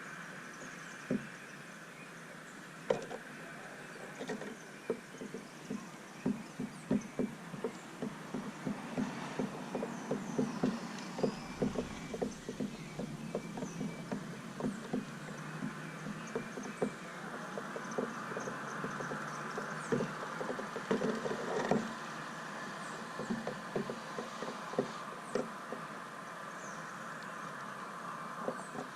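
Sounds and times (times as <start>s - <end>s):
birds pecking seed taps: 4.1s - 22.1s, 23.0s - 25.9s.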